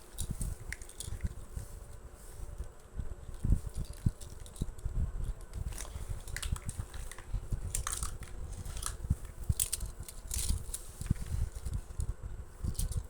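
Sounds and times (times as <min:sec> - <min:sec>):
toy cars clicking and scraping: 0:00.2 - 0:01.2, 0:05.5 - 0:11.7, 0:12.7 - 0:13.0.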